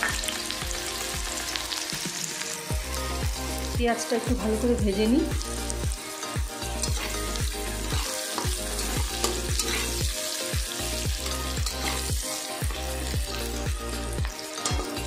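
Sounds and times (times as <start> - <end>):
onions sizzling in oil: 0.0 - 15.0
music with low beat: 4.8 - 15.0
spatula stirring: 6.0 - 15.0.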